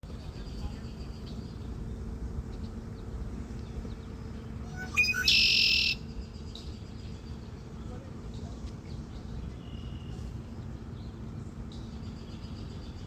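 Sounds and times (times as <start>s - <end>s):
low background rumble: 0.0s - 13.0s
bird chirping: 2.6s - 7.5s
harsh bird call: 4.7s - 6.0s.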